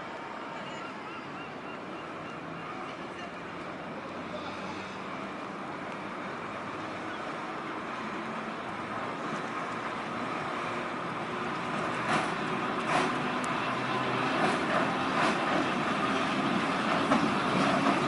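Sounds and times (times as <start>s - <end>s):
electric railway car rumble: 0.0s - 18.0s
wheels clicking over rail joints: 11.4s - 15.8s.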